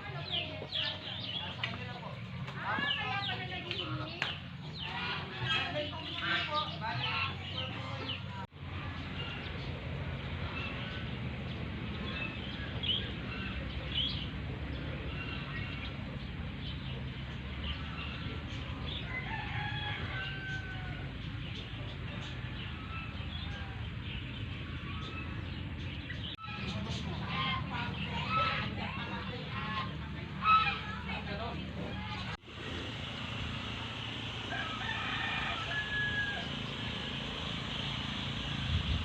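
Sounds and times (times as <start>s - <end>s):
rooster crowing: 19.0s - 21.2s, 34.3s - 37.1s
chickens clucking: 24.6s - 32.8s.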